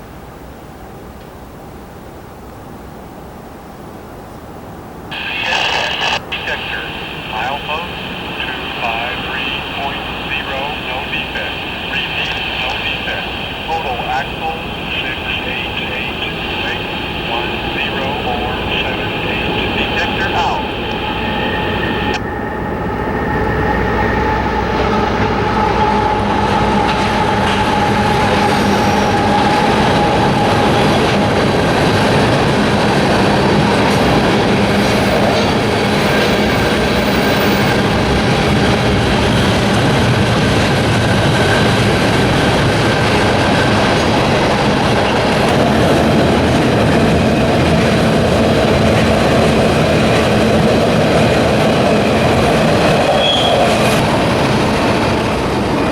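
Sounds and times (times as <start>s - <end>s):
train wheels rumbling on rail: 5.1s - 55.9s
faint wheel squeal: 53.0s - 54.0s.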